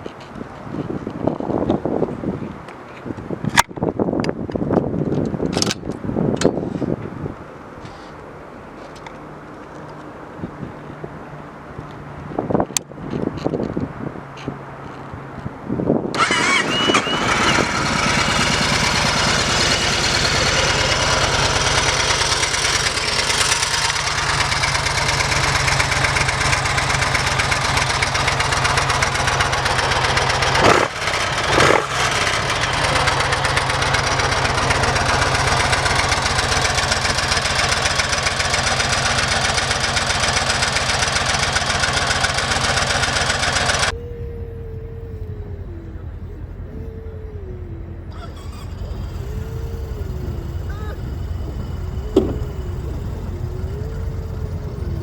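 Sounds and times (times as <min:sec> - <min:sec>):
motorcycle starter cranking: 0:16.2 - 0:43.9, 0:45.0 - 0:55.0
motorcycle engine idling: 0:17.2 - 0:55.0.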